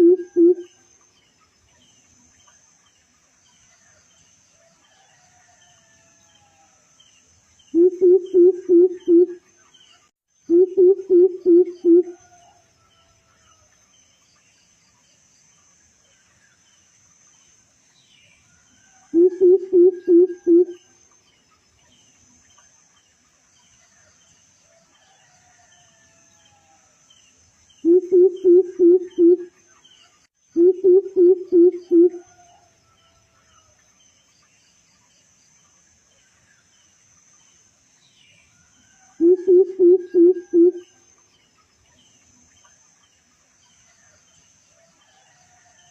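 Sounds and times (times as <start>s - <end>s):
insect trilling: 0.0s - 0.8s, 7.8s - 9.4s, 10.5s - 12.3s, 19.1s - 20.9s, 27.8s - 29.6s, 30.6s - 32.4s, 39.2s - 41.0s
distant bird chirps: 7.7s - 12.3s, 18.8s - 20.9s, 27.8s - 29.6s, 30.6s - 32.5s, 39.2s - 41.0s
high insect trill: 10.4s - 23.6s, 24.6s - 29.7s, 30.3s - 45.9s.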